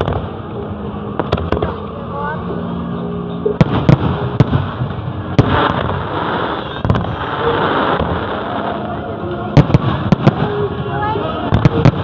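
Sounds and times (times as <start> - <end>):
fireworks bangs: 3.6 - 12.0
fireworks crackling: 3.6 - 12.0.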